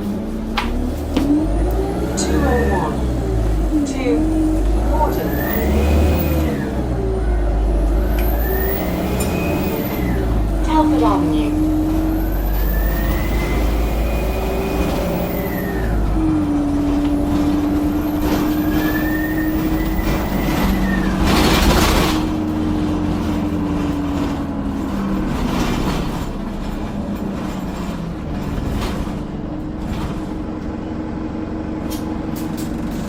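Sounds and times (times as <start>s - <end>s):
bus engine drone: 0.0s - 33.0s
bus turbo whistle: 12.3s - 16.0s, 18.2s - 21.2s.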